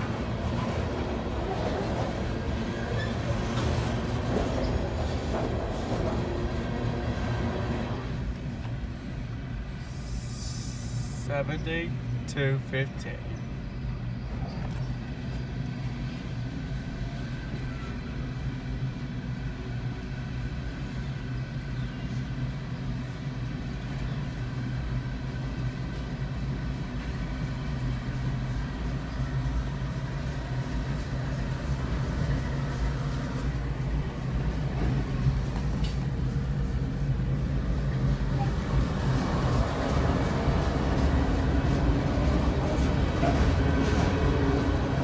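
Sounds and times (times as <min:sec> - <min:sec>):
diesel locomotive engines: 0:00.0 - 0:45.0
hopper cars rumbling on rails: 0:00.0 - 0:45.0.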